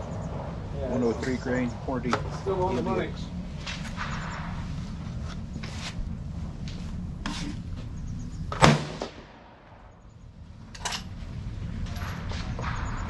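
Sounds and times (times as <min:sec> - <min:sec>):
loud rifle shot: 0:08.5 - 0:09.9.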